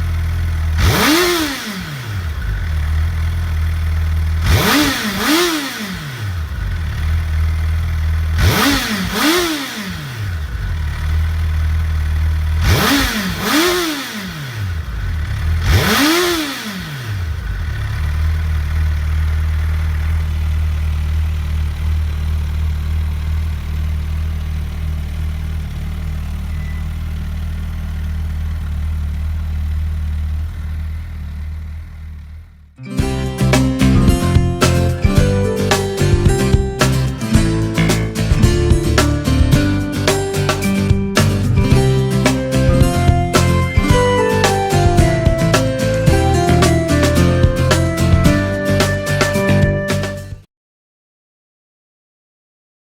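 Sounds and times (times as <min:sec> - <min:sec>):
motorcycle engine idling: 0:00.0 - 0:32.8.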